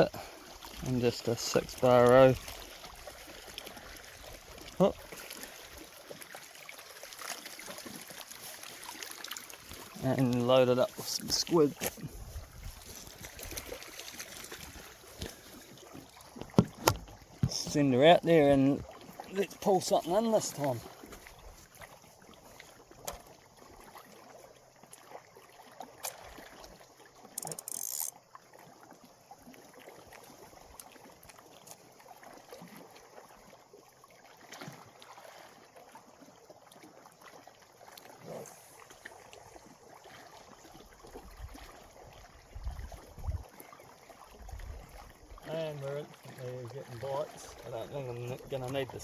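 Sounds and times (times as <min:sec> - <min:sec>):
water lapping at shore: 0:00.0 - 0:49.0
small clicks: 0:27.4 - 0:28.1.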